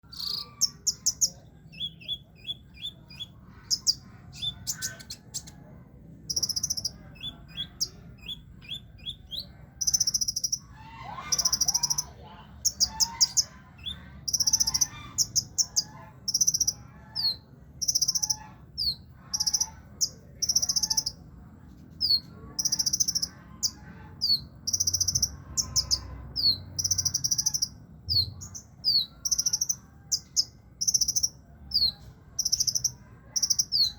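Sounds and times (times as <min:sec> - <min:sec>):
sunbird singing buzzy trills: 0:00.0 - 0:05.5, 0:06.2 - 0:21.2, 0:22.0 - 0:33.9.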